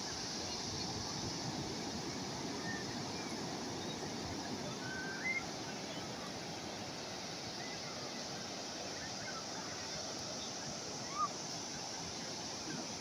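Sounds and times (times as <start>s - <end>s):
calm sea waves washing: 0.0s - 13.0s
faint short whistles: 4.8s - 5.4s.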